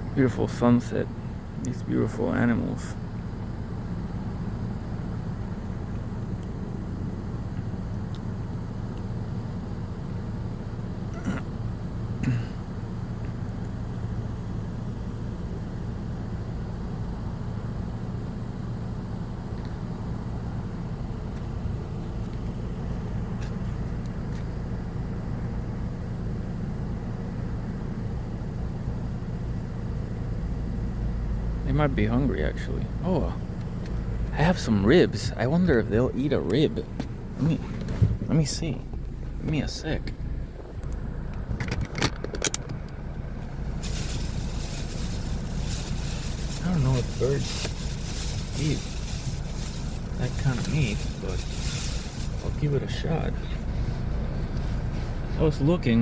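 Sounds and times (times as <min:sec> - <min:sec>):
low outdoor rumble: 0:00.0 - 0:56.0
hissing rustle: 0:43.4 - 0:55.4.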